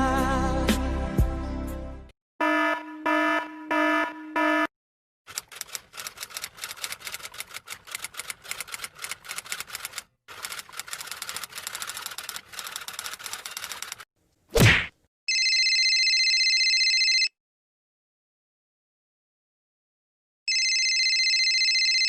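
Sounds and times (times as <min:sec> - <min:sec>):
rapid clicks: 0:05.3 - 0:14.1.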